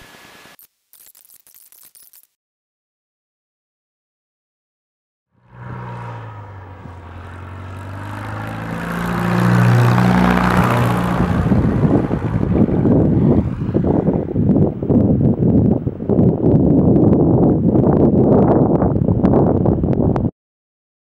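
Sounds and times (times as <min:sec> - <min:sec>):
light plane engine drone: 0:05.4 - 0:15.8
wind buffeting microphone: 0:06.0 - 0:20.3.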